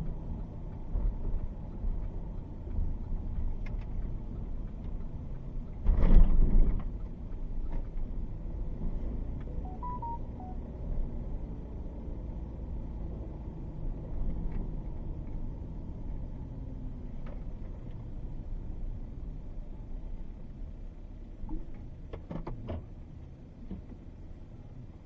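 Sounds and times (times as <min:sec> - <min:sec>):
short electronic chime: 0:09.5 - 0:10.6.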